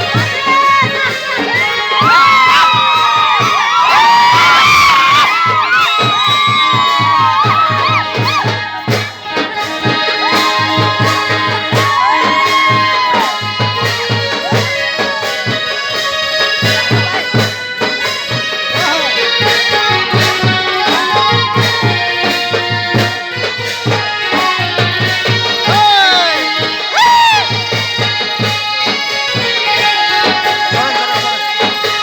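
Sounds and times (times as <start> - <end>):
music with steady beat: 0.0 - 32.0.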